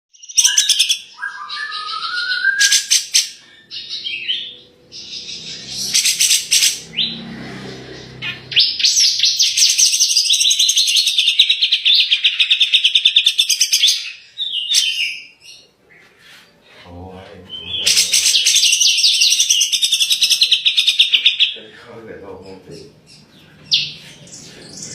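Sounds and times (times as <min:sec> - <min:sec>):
bird chirps and trills: 0:00.1 - 0:24.9
rising whistled bird phrase: 0:00.2 - 0:06.0.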